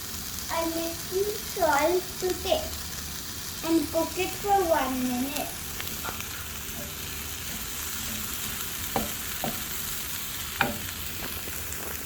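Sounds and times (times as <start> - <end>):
vegetables sizzling in a pan: 0.0 - 12.0
utensil knocking against pan: 8.9 - 9.8, 10.6 - 10.9.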